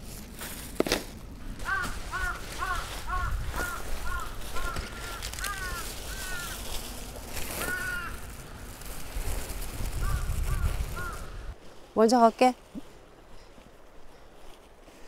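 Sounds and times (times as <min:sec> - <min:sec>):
bird calling: 0:01.5 - 0:06.8, 0:07.4 - 0:08.9, 0:10.0 - 0:11.6.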